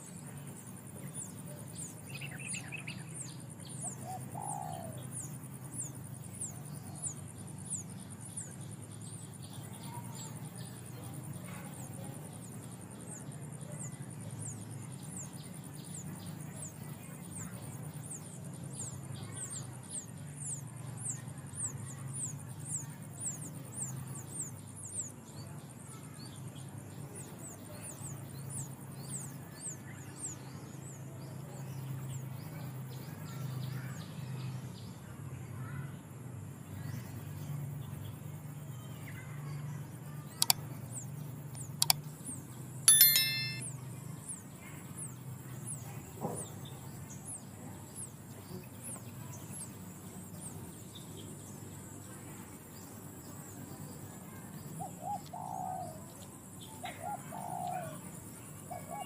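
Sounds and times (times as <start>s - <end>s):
sharp clicks: 40.4s - 40.6s, 41.6s - 42.0s.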